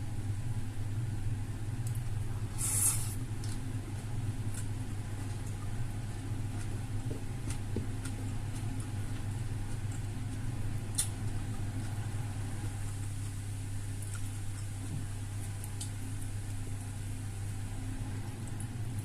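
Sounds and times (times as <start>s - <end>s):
low electrical hum: 0.0s - 19.0s
faint eating clicks: 3.4s - 16.6s.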